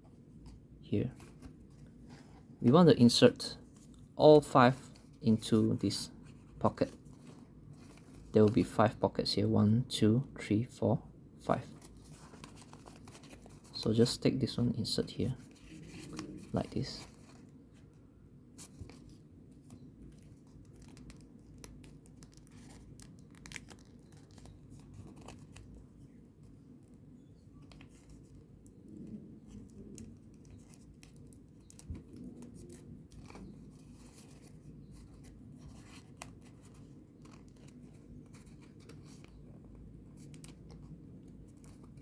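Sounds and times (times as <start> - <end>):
paper rustling: 0.4 - 2.5, 4.7 - 8.8, 11.5 - 17.9, 18.6 - 26.6, 29.0 - 42.0
small paper clicks and crackles: 11.7 - 13.8, 18.6 - 26.6, 27.4 - 42.0.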